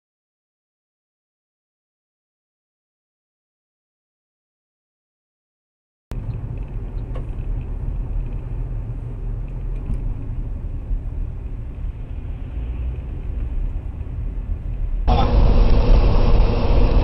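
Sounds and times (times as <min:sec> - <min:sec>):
car engine and road noise: 0:06.1 - 0:17.0.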